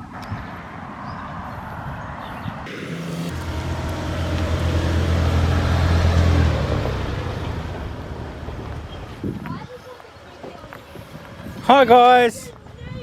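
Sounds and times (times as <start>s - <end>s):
car engine humming: 2.7s - 9.6s.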